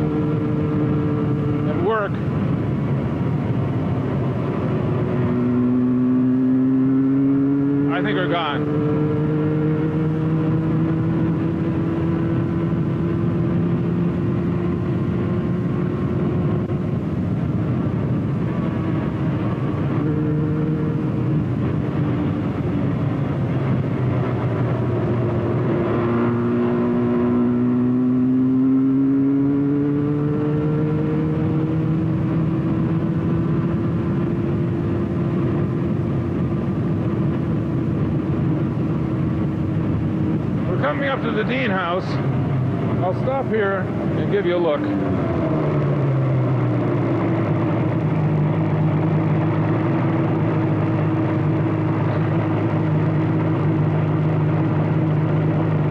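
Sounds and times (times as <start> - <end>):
motorcycle engine running: 0.0 - 55.9
road and wind noise: 0.0 - 55.9.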